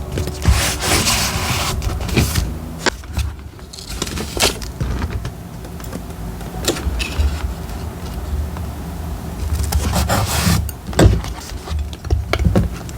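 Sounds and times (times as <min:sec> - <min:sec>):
paper rustling: 0:00.0 - 0:05.3.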